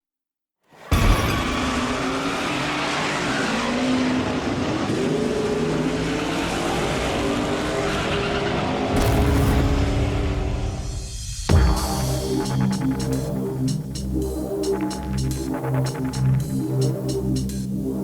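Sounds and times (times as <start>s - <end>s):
car engine revving hard: 1.3s - 10.8s.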